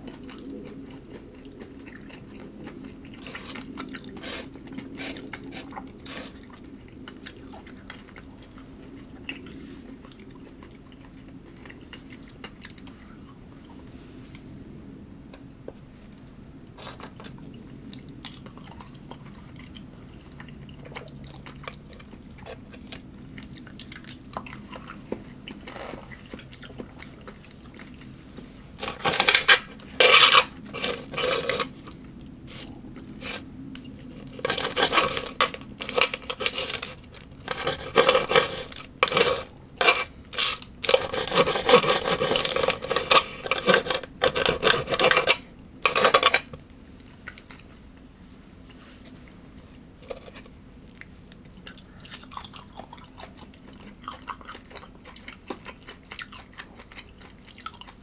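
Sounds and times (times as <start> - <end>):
quiet chewing: 0.0 - 14.6, 15.3 - 58.0
cutlery scraping a dish: 28.8 - 31.8, 32.5 - 33.4, 34.2 - 46.6.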